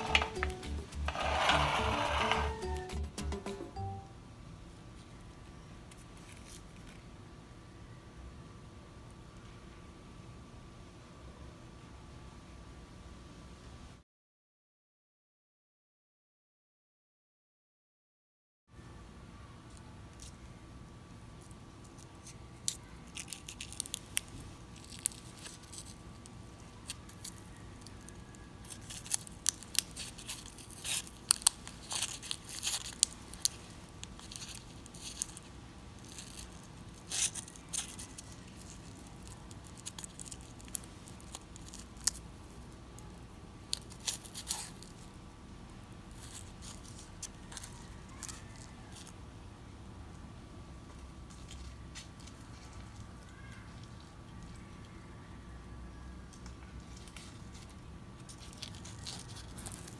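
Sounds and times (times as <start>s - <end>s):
paper cupcake liner crinkling: 21.3s - 45.2s, 45.9s - 49.2s, 56.8s - 59.9s.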